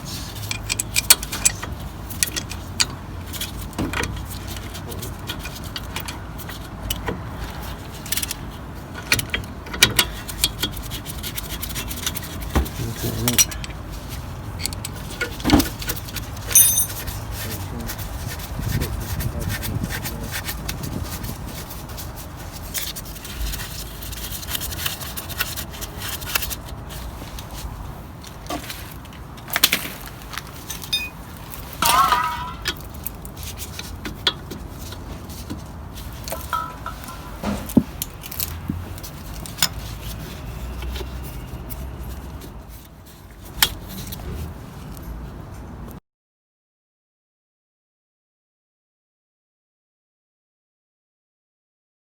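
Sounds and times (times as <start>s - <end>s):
metal tool clicks and clinks: 16.5s - 17.1s, 30.6s - 31.2s.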